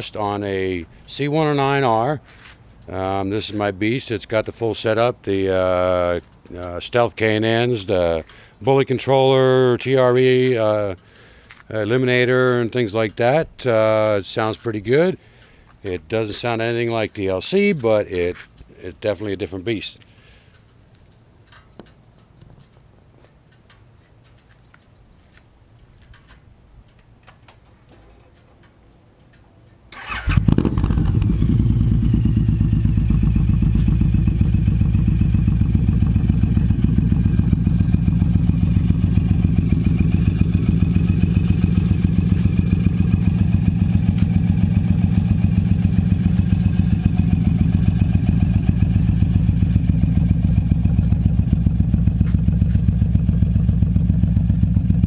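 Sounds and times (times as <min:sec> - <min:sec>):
motorcycle engine starting and idling: 0:26.1 - 0:55.0.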